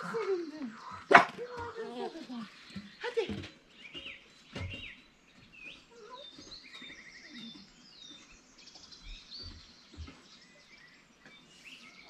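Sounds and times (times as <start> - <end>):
songbirds chirping and twittering: 0.0 - 12.0.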